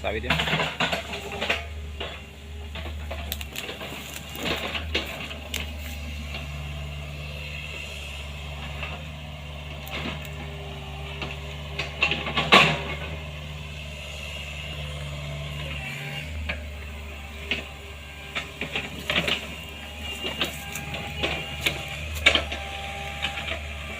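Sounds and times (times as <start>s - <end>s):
excavator diesel engine running: 0.0s - 23.9s
metallic knocks and clanks: 0.2s - 6.7s, 11.1s - 13.3s.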